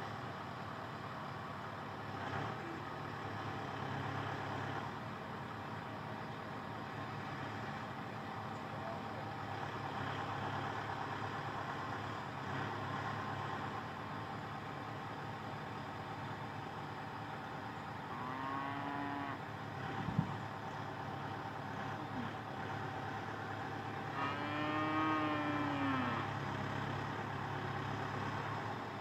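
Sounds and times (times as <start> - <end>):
tractor engine running: 0.0 - 18.2, 19.4 - 24.2, 24.8 - 29.0.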